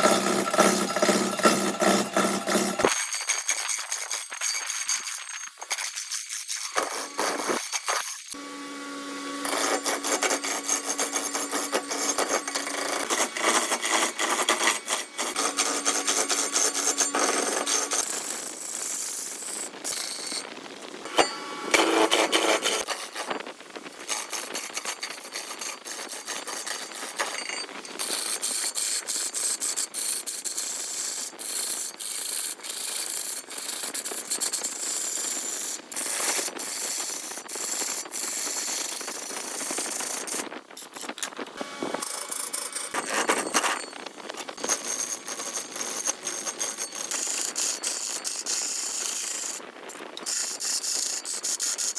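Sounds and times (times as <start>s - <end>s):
rasping and scraping on wood: 0.0s - 3.0s, 5.7s - 20.4s, 21.0s - 29.3s, 41.9s - 51.9s.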